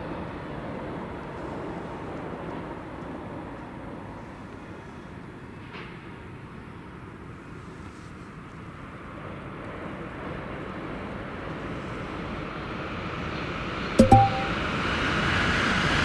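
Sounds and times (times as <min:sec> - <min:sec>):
sharp double tone: 0:14.0 - 0:14.6.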